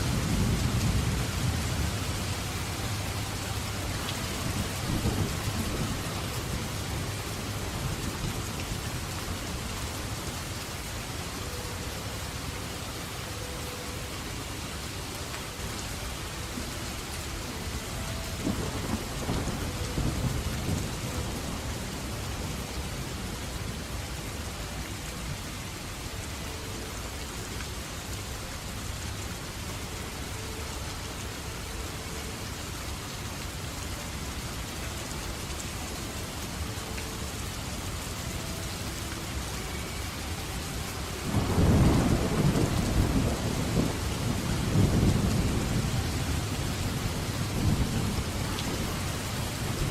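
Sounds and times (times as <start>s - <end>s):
steady rain: 0.0s - 49.9s
rolling thunder: 4.2s - 7.1s, 18.4s - 22.6s, 41.3s - 49.9s.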